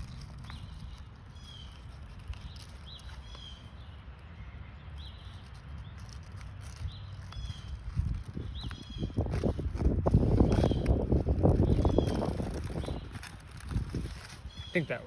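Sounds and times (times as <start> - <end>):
bird chirping with trill: 0.2 - 9.5, 11.5 - 15.0.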